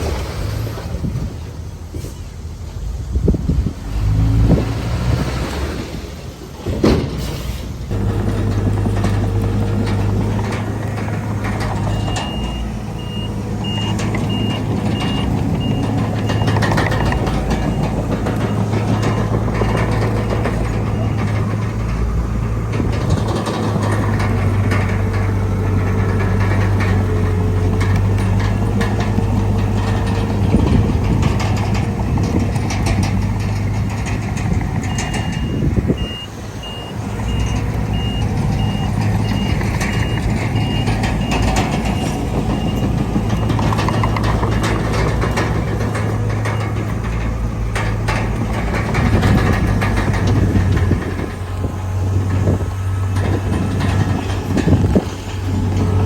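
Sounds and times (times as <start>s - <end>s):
heavy diesel machine running: 0.0s - 56.0s
reversing alarm beeping: 11.7s - 21.7s, 34.8s - 44.6s.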